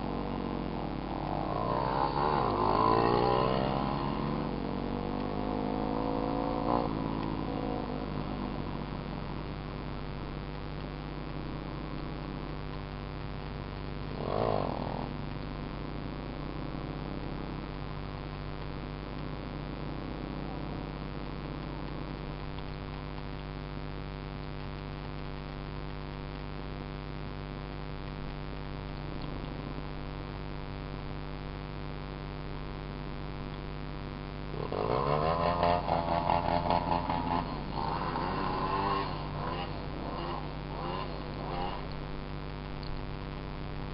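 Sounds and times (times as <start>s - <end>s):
pulsing sound with rising pitch: 0.0s - 9.0s
dirt bike engine idling: 0.0s - 23.4s, 34.5s - 43.9s.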